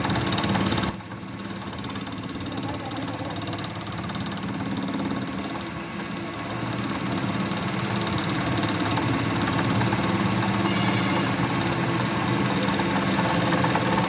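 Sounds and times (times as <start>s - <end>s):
power tool rattling: 0.0s - 5.7s.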